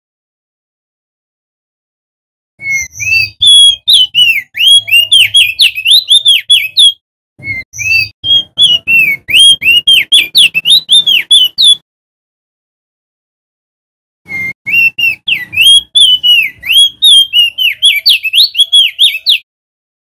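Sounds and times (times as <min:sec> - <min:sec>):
bird singing whistled notes: 0:02.6 - 0:11.8, 0:14.3 - 0:19.5.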